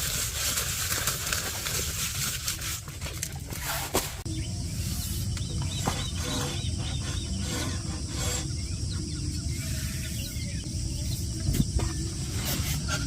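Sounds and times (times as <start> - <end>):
small bird chirps: 4.3 - 12.2
wind rumble on microphone: 4.3 - 13.0.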